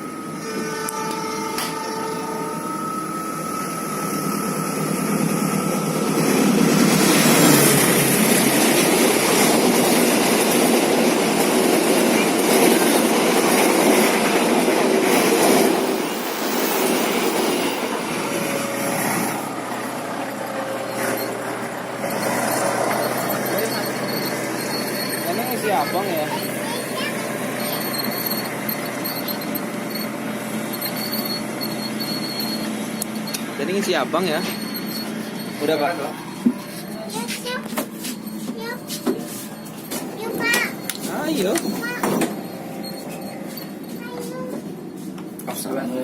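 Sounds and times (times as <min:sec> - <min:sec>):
train rumbling past: 0:00.0 - 0:46.0.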